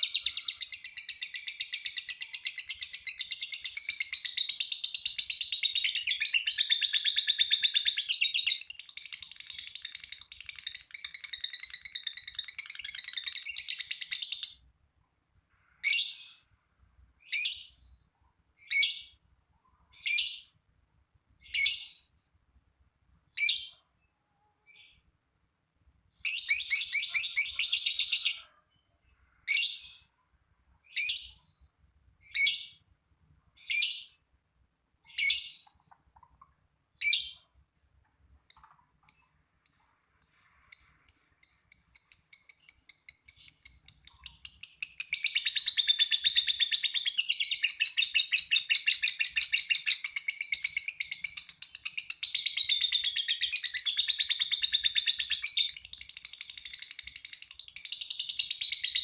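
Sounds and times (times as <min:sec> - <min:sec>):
lovebird chattering: 0:00.0 - 0:14.6, 0:37.0 - 0:59.0.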